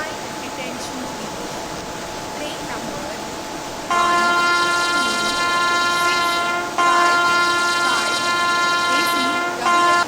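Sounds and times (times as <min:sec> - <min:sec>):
train horn blasts: 0:03.9 - 0:10.0.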